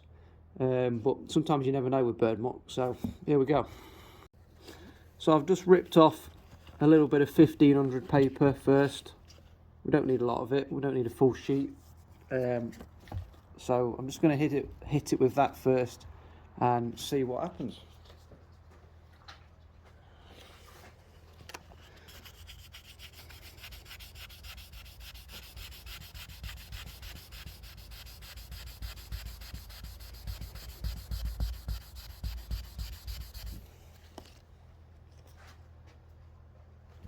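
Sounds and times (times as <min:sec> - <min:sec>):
sandpaper rubbing car paint: 0:22.1 - 0:33.7.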